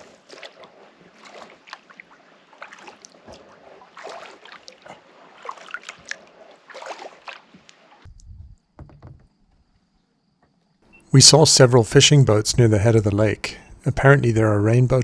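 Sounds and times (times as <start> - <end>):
kayak paddle strokes in water: 0.0 - 8.1
low rumble: 8.1 - 8.6.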